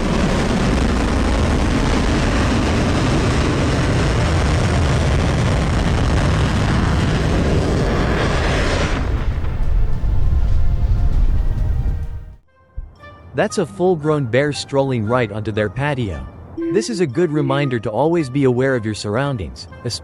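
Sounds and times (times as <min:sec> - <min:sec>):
rocket engines firing: 0:00.0 - 0:11.0.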